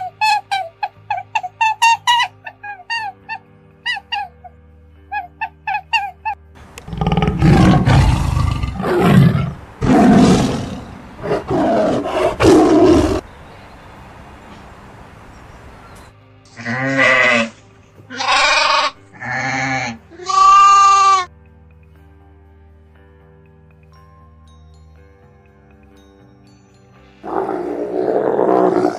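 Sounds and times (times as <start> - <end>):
soft background music: 0.0 - 28.9
rough roaring animal calls: 6.8 - 13.2, 27.2 - 28.9
animal bleating: 16.5 - 21.3
high animal chirps: 16.6 - 21.3.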